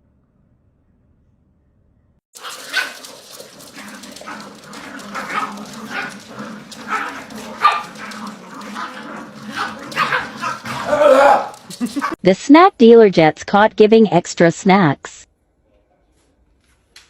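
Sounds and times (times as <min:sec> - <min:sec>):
dog barking and yipping: 0:02.4 - 0:12.2.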